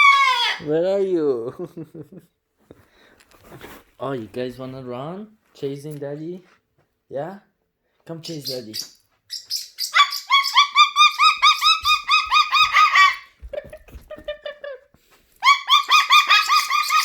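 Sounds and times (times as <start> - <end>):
cockatoo chirping calls: 8.3 - 13.3, 15.4 - 17.0.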